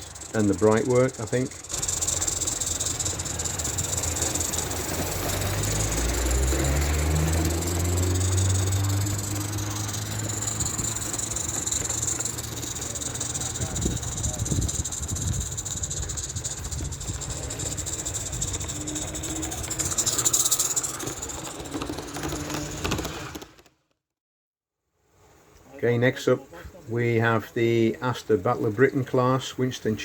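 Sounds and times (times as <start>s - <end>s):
steam locomotive hissing: 0.0s - 22.8s.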